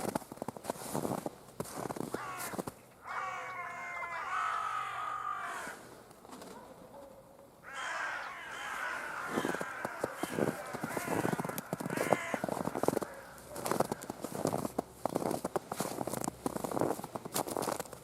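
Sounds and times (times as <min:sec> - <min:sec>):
footsteps crunching in snow: 0:00.0 - 0:03.4, 0:08.5 - 0:18.0
crows cawing: 0:02.0 - 0:05.9, 0:07.6 - 0:14.6.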